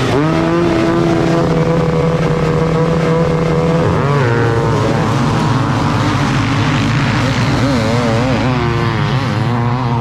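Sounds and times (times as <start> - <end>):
motocross bike engine revving: 0.0 - 10.0.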